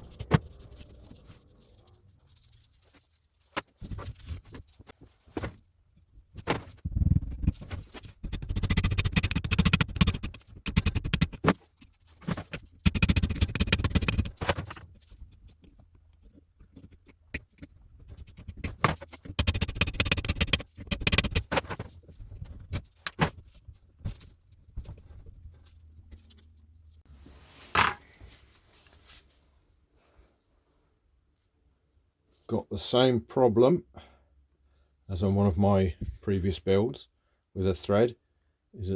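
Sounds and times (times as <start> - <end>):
metal parts scraping and rattling: 0.0 - 5.4, 6.4 - 26.4.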